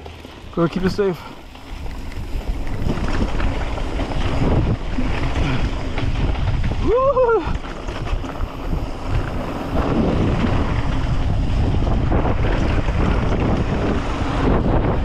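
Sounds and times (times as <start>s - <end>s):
tyres rumbling on dirt trail: 0.0s - 15.0s
wind rushing over microphone: 0.5s - 15.0s
person shouting woo: 6.8s - 7.5s.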